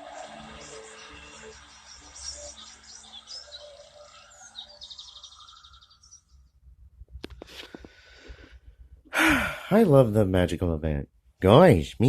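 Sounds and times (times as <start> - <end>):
birds chirping: 0.0 - 6.7.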